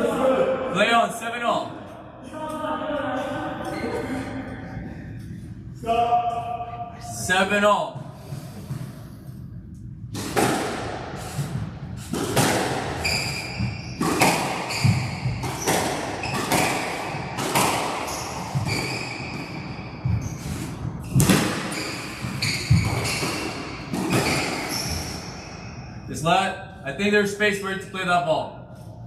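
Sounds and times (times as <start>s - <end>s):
squash ball cracking off rackets: 12.1s - 18.9s
shoes squeaking on court floor: 13.0s - 16.8s, 17.6s - 26.0s.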